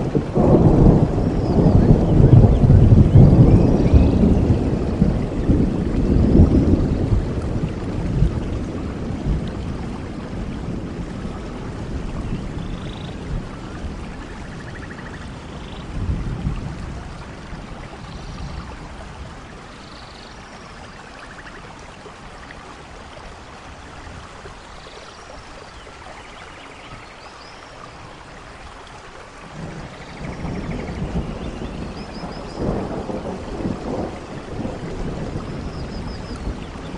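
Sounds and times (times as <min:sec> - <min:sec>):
rolling thunder rumble: 0:00.0 - 0:19.8, 0:29.4 - 0:36.9
steady rain: 0:00.0 - 0:36.9.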